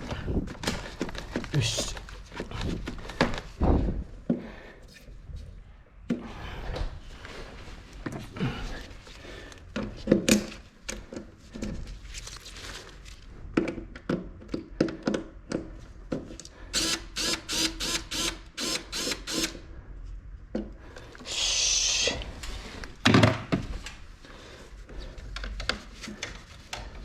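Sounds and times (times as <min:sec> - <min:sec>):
knocks and clatter of handling: 0:09.7 - 0:12.7, 0:13.4 - 0:16.4.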